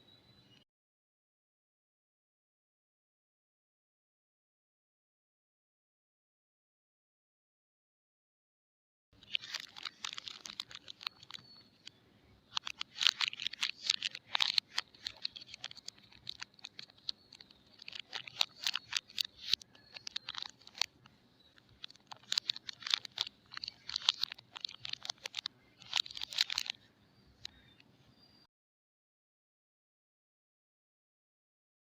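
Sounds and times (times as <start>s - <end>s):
packaging crinkling: 9.2s - 11.6s, 12.5s - 21.0s, 21.6s - 26.8s.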